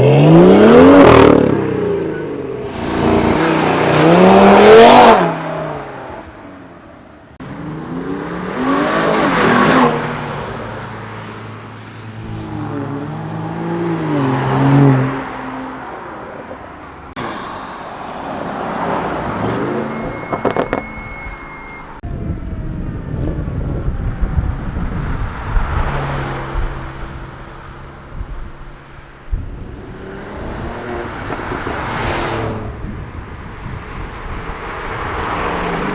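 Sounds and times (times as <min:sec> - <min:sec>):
cars accelerating past: 0:00.0 - 0:06.4, 0:07.4 - 0:16.1, 0:24.6 - 0:28.1, 0:29.6 - 0:33.1, 0:33.8 - 0:35.9.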